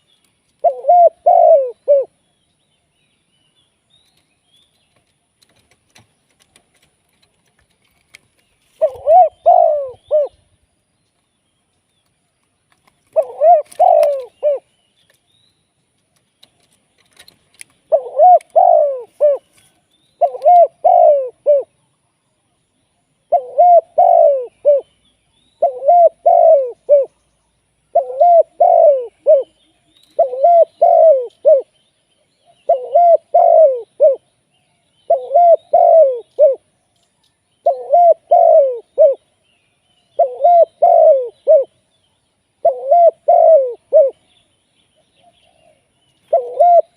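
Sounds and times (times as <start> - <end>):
dove cooing: 0.6 - 2.2, 8.8 - 10.5, 13.1 - 14.7, 17.9 - 19.6, 20.2 - 21.8, 23.3 - 24.9, 25.6 - 27.2, 27.9 - 31.8, 32.6 - 34.3, 35.1 - 36.7, 37.6 - 39.3, 40.2 - 41.8, 42.6 - 44.2, 45.2 - 46.9.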